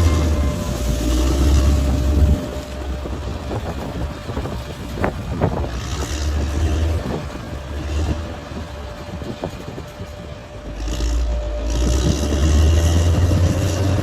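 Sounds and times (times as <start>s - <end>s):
bulldozer diesel engine rumbling: 0.0s - 14.0s
thin constant whine: 0.0s - 14.0s.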